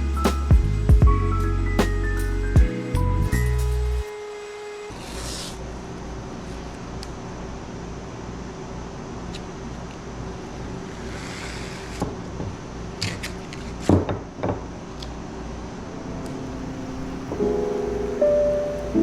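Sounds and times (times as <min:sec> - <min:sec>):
piano music: 0:00.0 - 0:04.1, 0:15.8 - 0:19.0
low machine hum: 0:15.6 - 0:19.0.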